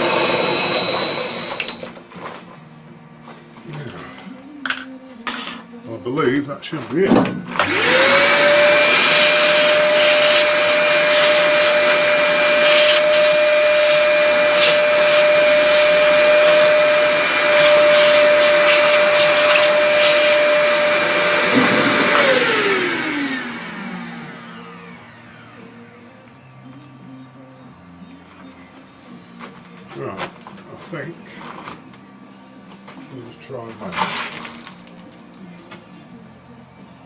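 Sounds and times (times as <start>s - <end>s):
shop vacuum motor whining: 0.0s - 2.1s, 7.5s - 26.4s
debris rattling in vacuum: 33.8s - 34.9s.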